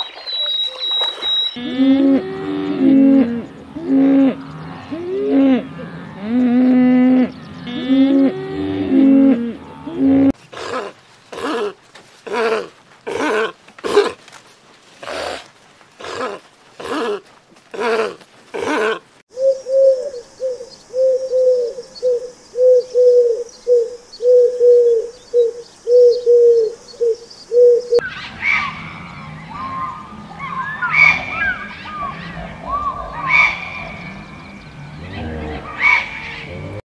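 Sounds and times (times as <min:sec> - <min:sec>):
bird chirps and whistles: 0:00.0 - 0:01.6.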